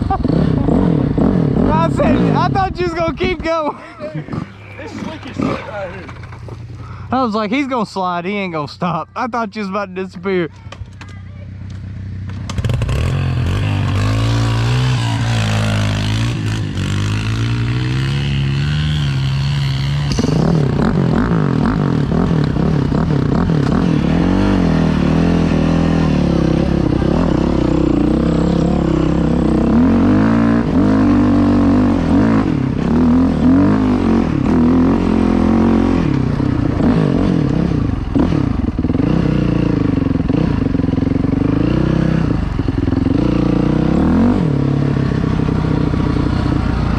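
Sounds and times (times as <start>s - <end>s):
dirt bike engine revving: 0.0s - 3.4s, 4.2s - 6.5s, 12.2s - 46.9s.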